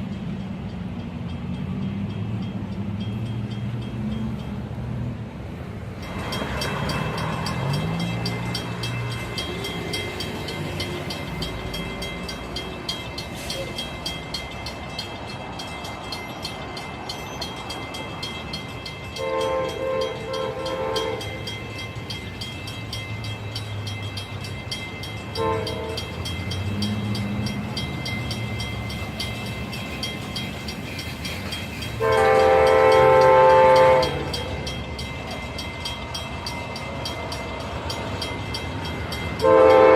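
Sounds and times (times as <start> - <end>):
train rumbling: 0.0 - 39.9
train horn blasts: 19.2 - 21.6, 25.3 - 26.3, 32.0 - 34.6, 39.4 - 39.9.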